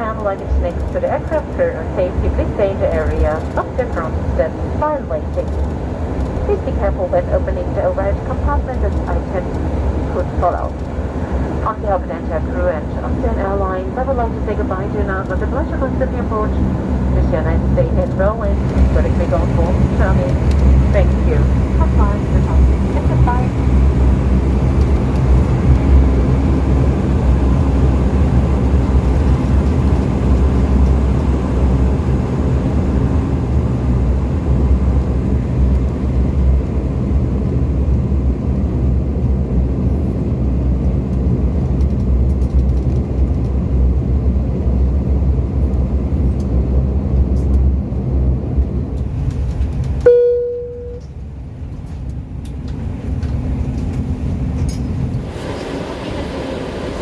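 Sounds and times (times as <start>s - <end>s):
quiet cabin hum: 0.0s - 56.8s
turboprop engine droning hum: 0.0s - 57.0s
short beep: 50.1s - 51.1s.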